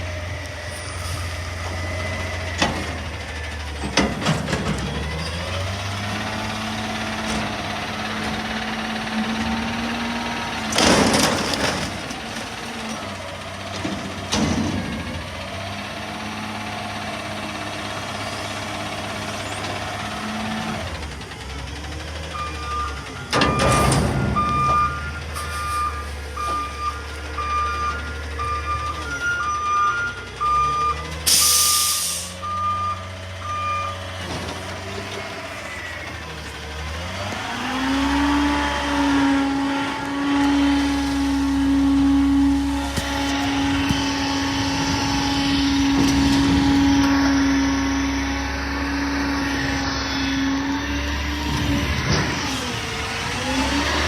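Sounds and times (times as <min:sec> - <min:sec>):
garbage truck diesel engine: 0:00.0 - 0:54.0
back-up alarm beeping: 0:22.3 - 0:34.0.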